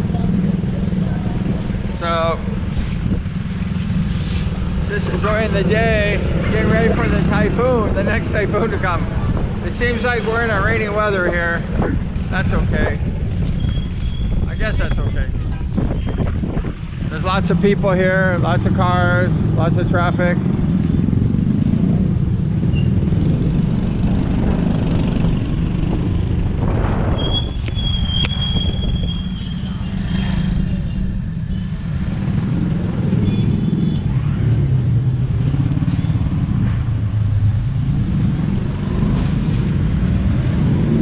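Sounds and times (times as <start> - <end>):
low engine rumble: 0.0 - 40.6
motorcycles and cars passing: 0.0 - 41.0
high-pitched squeal: 26.9 - 32.3.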